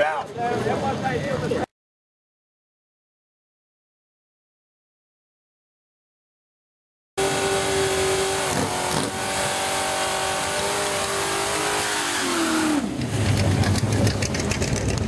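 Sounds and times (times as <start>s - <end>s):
engine revving high: 7.2s - 13.8s.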